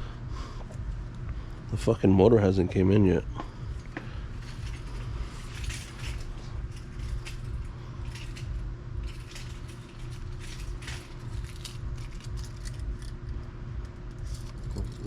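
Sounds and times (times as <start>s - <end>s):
steady low hum: 0.0s - 15.0s
metal clicks and rattles: 4.4s - 15.0s.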